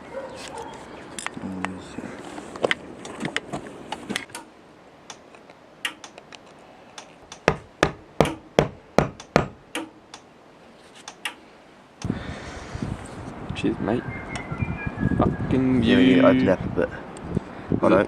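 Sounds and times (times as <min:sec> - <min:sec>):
sharp knocks: 0:07.4 - 0:10.0.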